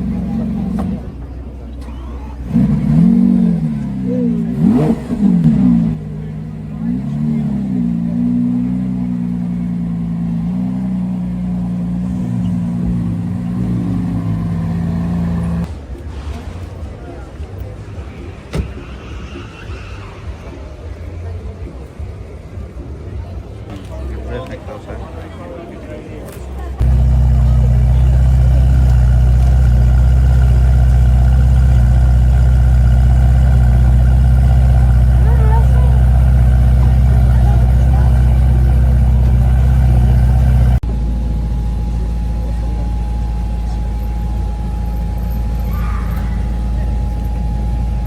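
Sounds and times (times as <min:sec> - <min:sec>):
car engine running at low revs: 0:00.0 - 0:15.8, 0:26.8 - 0:48.0.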